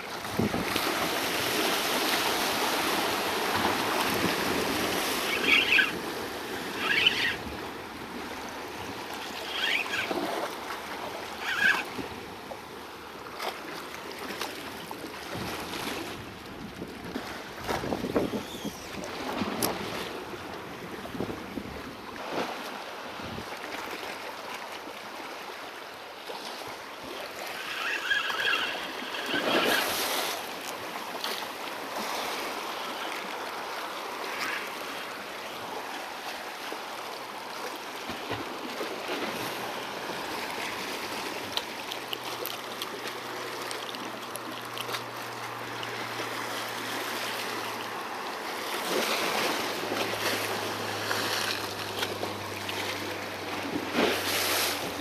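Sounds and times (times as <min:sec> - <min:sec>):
sea waves washing against rocks: 0:00.0 - 0:23.5, 0:27.2 - 0:55.0
wind on microphone: 0:00.2 - 0:00.8, 0:15.3 - 0:19.9.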